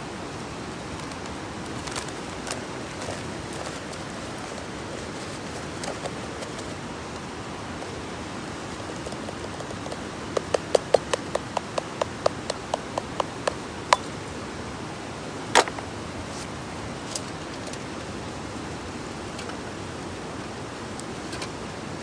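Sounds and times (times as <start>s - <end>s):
steady hiss: 0.0s - 22.0s
sharp knocks: 9.6s - 14.1s.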